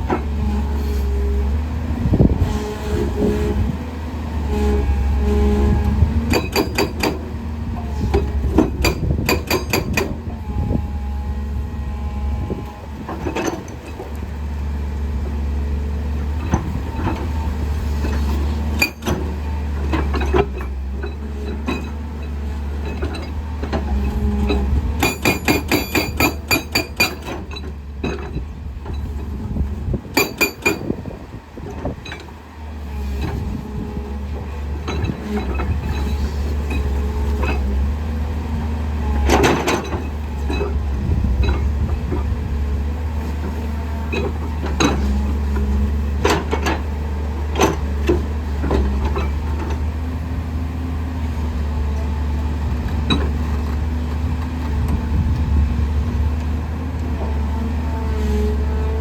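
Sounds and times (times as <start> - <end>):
diesel engine running: 0.0 - 59.0
hydraulic breaker hammering rock: 6.2 - 7.3, 8.1 - 10.3, 23.9 - 28.4, 30.1 - 31.2.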